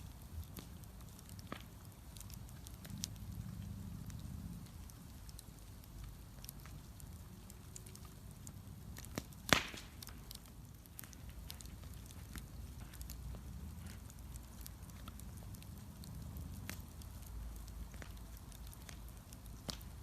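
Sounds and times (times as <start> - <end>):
bonfire crackling: 0.0 - 20.0
low fire rumble: 0.0 - 20.0
loud sharp pop: 9.5 - 9.9.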